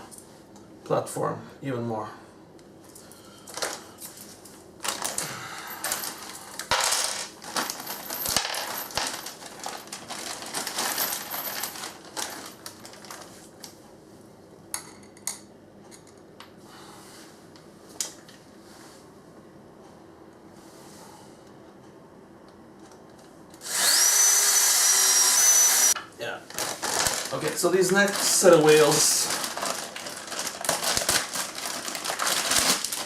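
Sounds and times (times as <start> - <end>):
metal screws clinking and rattling: 5.9 - 12.5.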